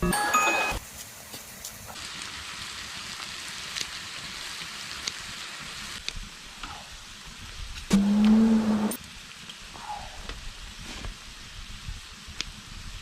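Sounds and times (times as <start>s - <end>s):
pork belly sizzling on griddle: 0.8s - 7.9s, 10.5s - 13.0s.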